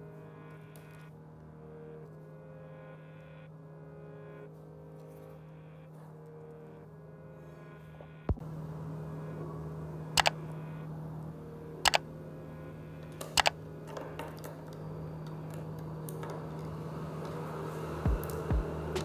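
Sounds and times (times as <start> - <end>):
steady low hum: 0.0 - 19.0
sharp plastic clicks: 13.2 - 13.6.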